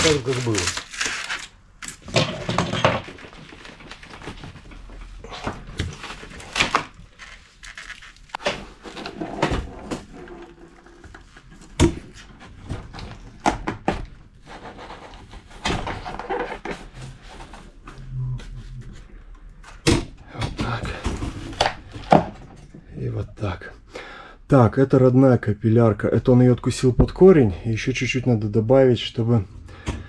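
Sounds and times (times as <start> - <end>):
tools and parts clattering: 0.0 - 5.0.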